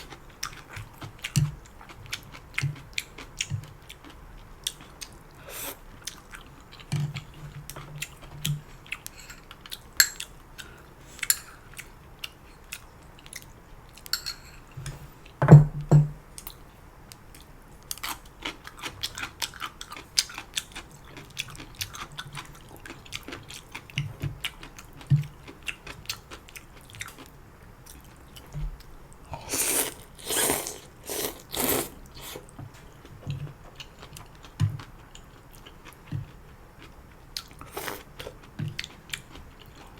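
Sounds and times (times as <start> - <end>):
chewing with wet mouth clicks: 0.1 - 5.3, 6.0 - 14.2, 16.4 - 28.9, 33.1 - 39.9
slurping noodles: 29.4 - 32.5.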